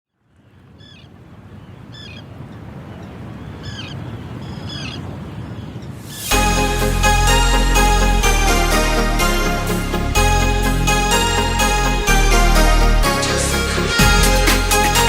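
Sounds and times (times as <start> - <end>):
bird calling: 0.4 - 6.3
music: 6.3 - 15.0.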